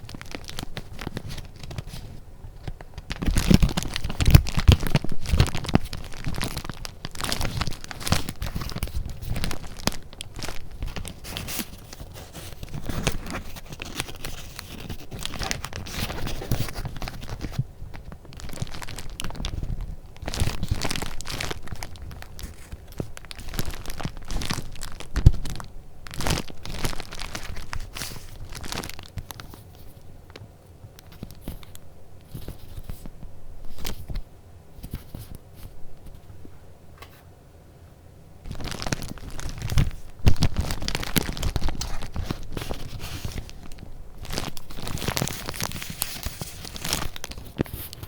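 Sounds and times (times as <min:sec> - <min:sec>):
paper rustling and crinkling: 0:00.0 - 0:37.2, 0:38.5 - 0:48.0.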